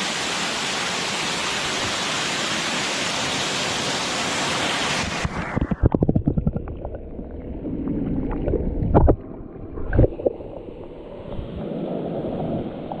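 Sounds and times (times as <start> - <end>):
rushing stream and waterfall: 0.0 - 5.9.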